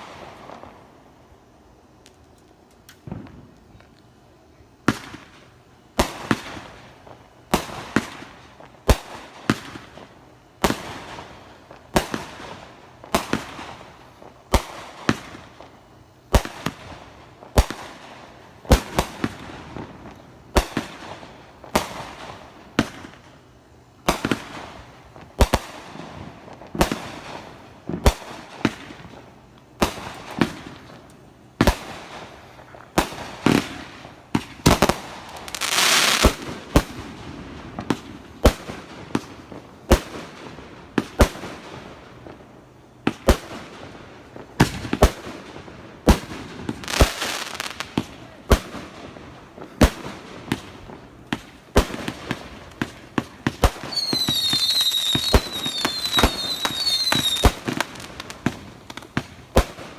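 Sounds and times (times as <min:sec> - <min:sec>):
loud hissing crackle: 0:00.0 - 0:59.9
fireworks banging: 0:24.0 - 0:59.9.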